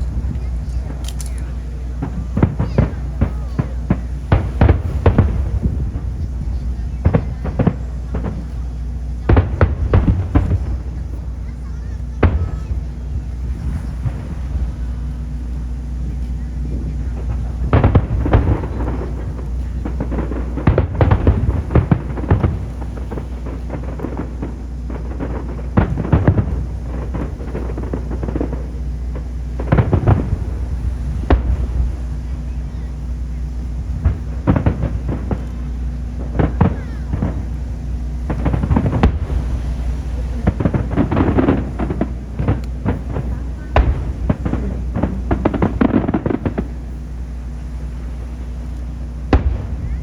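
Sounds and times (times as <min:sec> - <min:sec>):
distant fireworks rumble: 0:00.0 - 0:50.0
loud fireworks bangs: 0:00.0 - 0:50.0.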